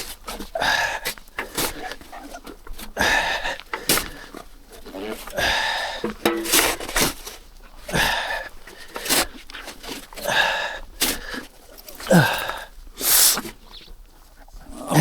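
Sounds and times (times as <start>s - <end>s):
man breathing hard: 0.0s - 6.6s, 7.8s - 9.5s, 10.1s - 13.5s
man grunting with effort: 12.0s - 12.6s, 14.8s - 15.0s.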